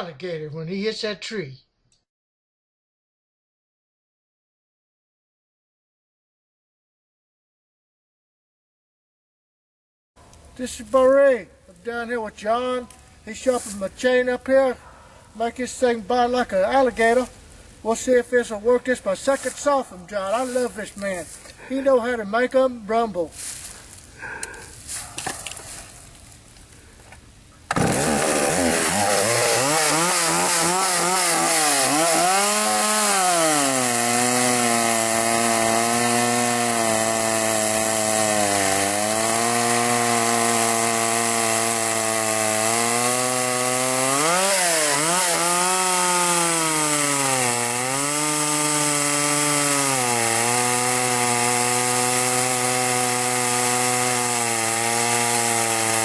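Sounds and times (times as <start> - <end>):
chainsaw cutting wood: 27.7 - 56.0.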